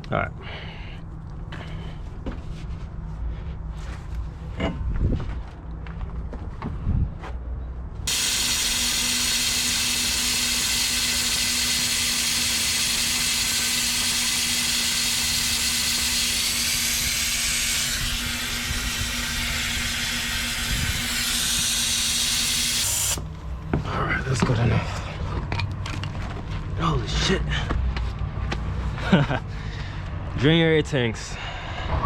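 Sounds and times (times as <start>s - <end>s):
compressed air hissing: 8.1s - 24.4s.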